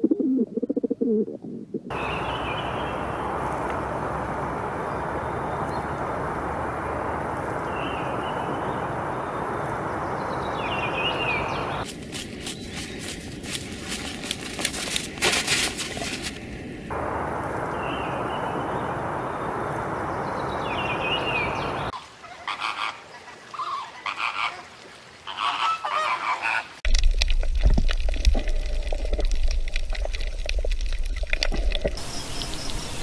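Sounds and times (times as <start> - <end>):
pigeons cooing: 0.0 - 2.0
steady rushing noise: 1.9 - 21.9.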